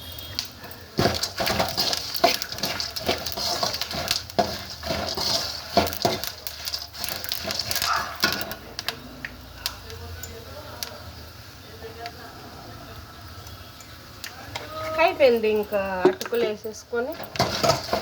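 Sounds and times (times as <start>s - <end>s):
light sizzle: 0.0s - 18.0s
spatula scraping a pan: 1.0s - 8.6s, 16.0s - 18.0s.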